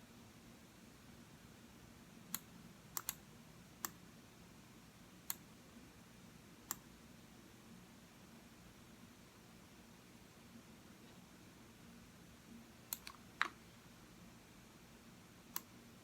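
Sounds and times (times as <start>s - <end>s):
faint steady hiss: 0.0s - 16.0s
computer mouse clicks: 2.3s - 3.2s, 12.9s - 13.6s, 15.5s - 15.7s.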